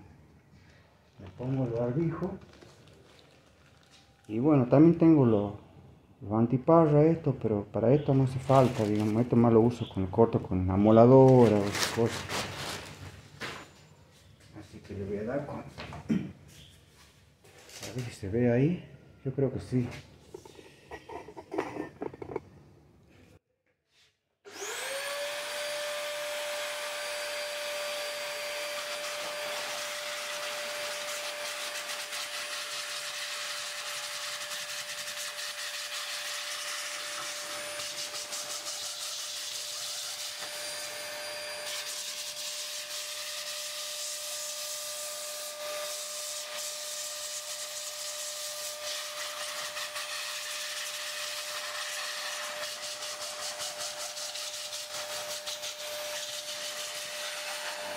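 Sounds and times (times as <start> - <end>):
vacuum cleaner motor whine: 24.5 - 31.4, 36.7 - 42.5, 57.0 - 57.9.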